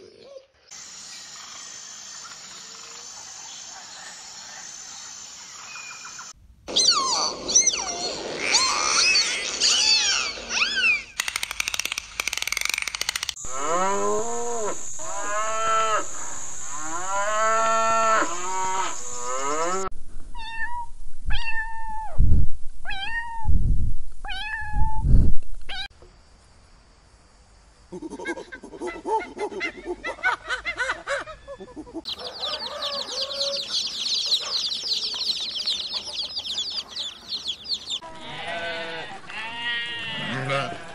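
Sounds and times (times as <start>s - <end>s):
chorus of high chirping calls: 0.7s - 13.1s, 32.1s - 38.5s
cows mooing: 13.5s - 16.2s, 16.8s - 19.9s.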